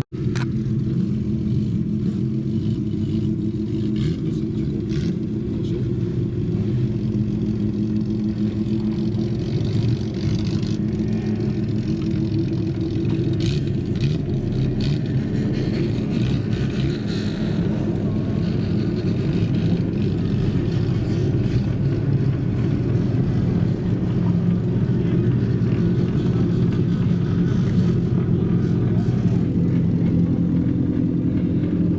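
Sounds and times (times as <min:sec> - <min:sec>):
car engines running: 0:00.0 - 0:31.9.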